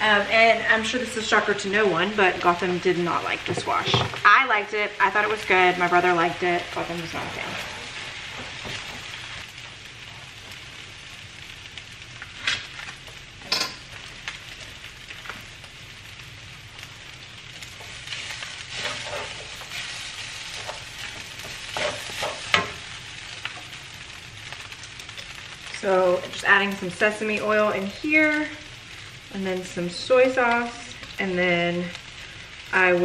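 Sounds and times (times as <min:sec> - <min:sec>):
food sizzling in a wok: 0:00.0 - 0:33.0
spatula scraping a wok: 0:07.2 - 0:09.4, 0:17.5 - 0:24.0.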